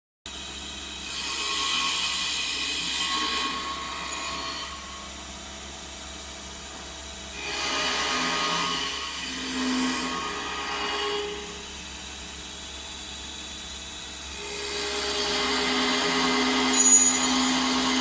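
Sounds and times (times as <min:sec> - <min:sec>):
tool cutting spinning wood: 0:13.9 - 0:18.0
wood lathe humming: 0:14.2 - 0:18.0.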